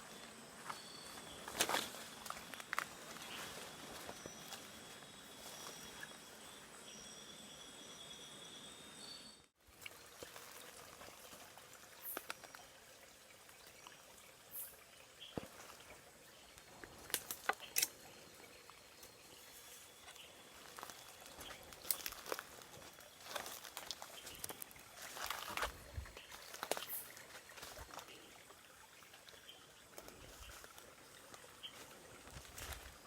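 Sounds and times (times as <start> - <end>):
trickle of water: 9.6 - 33.0
small splashes: 9.7 - 12.6.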